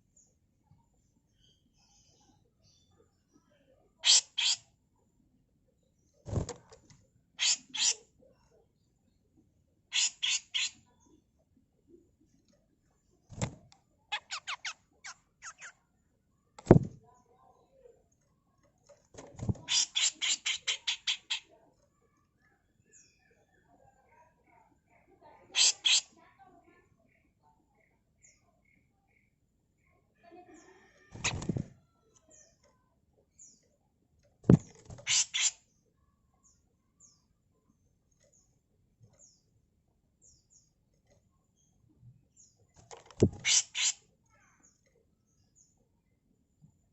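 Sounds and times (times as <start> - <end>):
faint bird chirps: 0.0 - 13.4, 14.0 - 34.0
bird harsh rasping calls: 4.0 - 4.6, 7.4 - 8.0, 9.9 - 10.8, 14.1 - 15.8, 19.6 - 21.5, 25.5 - 26.1, 34.9 - 35.6, 43.2 - 44.1
sharp thump: 16.6 - 17.0.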